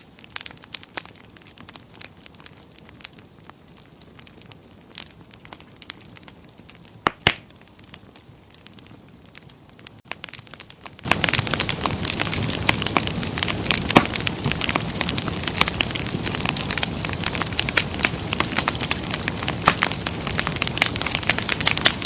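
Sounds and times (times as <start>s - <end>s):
wood fire crackling: 0.0s - 22.0s
sharp loud fire pops: 7.0s - 7.5s, 11.0s - 22.0s.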